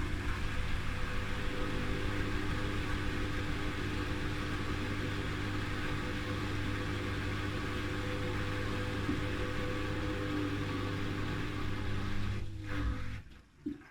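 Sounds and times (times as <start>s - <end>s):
washing machine motor hum: 0.0s - 13.5s.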